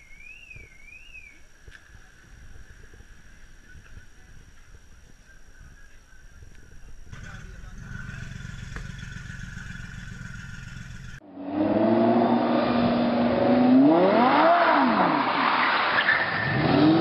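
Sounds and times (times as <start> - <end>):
car engine accelerating: 7.1 - 17.0.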